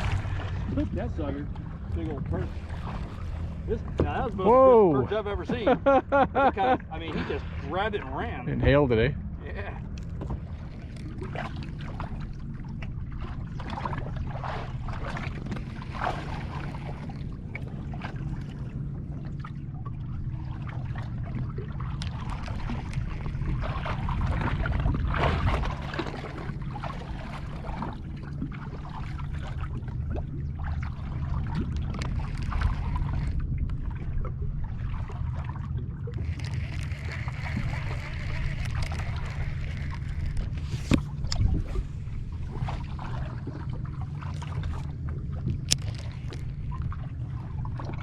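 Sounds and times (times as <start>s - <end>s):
steady low hum: 0.0s - 48.0s
water lapping against hull: 0.0s - 48.0s.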